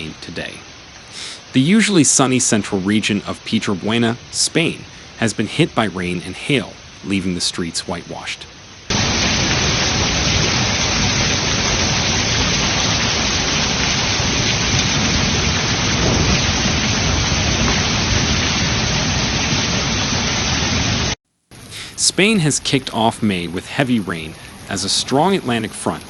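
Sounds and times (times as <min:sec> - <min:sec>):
heavy rain and hail: 0:00.0 - 0:26.0
deep low rumble: 0:08.9 - 0:21.0.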